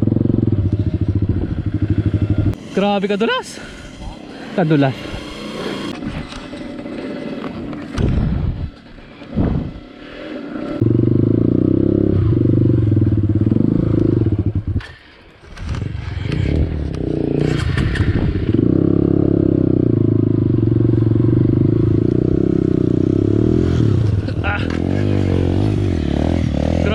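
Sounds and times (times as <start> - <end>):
dirt bike engine: 0.0 - 26.9
clatter and scrapes: 5.9 - 9.7, 14.8 - 18.6.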